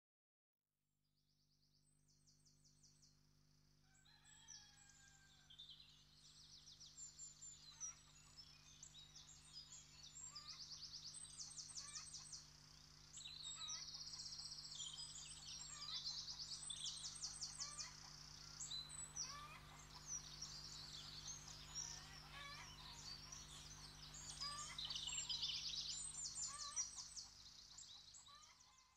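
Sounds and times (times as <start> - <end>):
birds chirping in rapid trills: 5.9 - 28.9.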